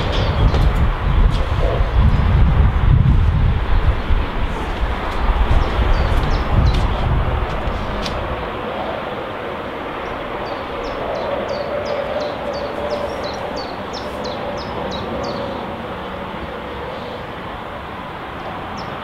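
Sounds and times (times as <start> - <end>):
steady rushing background noise: 0.0 - 19.0
songbird chirping: 10.0 - 15.7.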